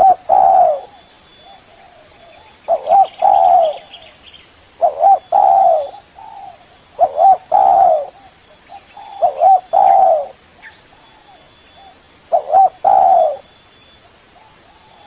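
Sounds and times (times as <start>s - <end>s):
dove cooing: 0.0s - 4.2s, 4.8s - 13.6s, 14.4s - 15.0s.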